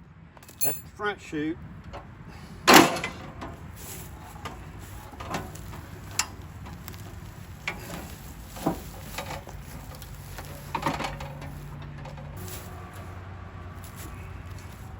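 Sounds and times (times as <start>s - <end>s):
light knocks and clicks of parts: 4.3s - 13.1s.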